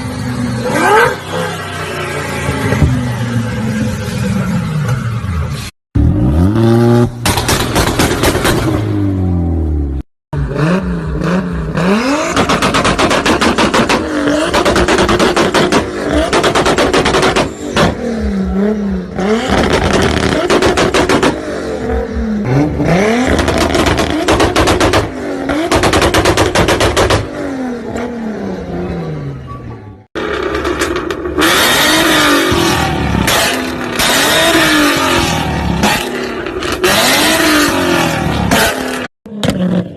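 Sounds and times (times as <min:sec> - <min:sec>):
car engines revving: 0:00.0 - 0:39.9
exhaust pops and crackles: 0:07.2 - 0:08.8.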